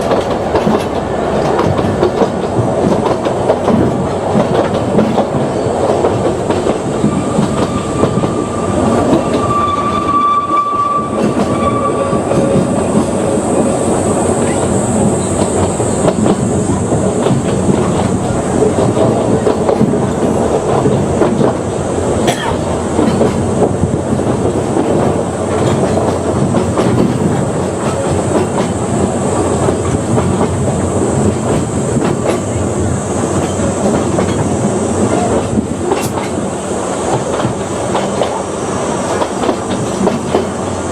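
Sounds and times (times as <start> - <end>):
train wheels clacking on rail joints: 0.0 - 40.9
high wheel squeal: 6.8 - 16.0.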